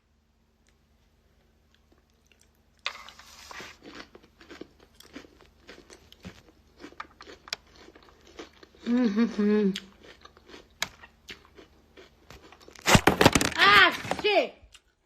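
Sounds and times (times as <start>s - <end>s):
crunchy chewing of salad: 1.6s - 13.0s.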